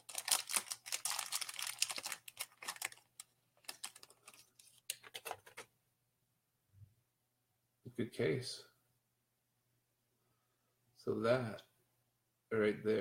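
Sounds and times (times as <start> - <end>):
plastic packaging crackling: 0.0 - 5.6.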